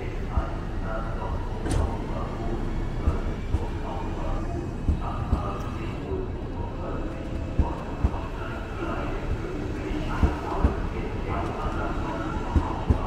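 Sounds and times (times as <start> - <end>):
train rumble: 0.0 - 13.0.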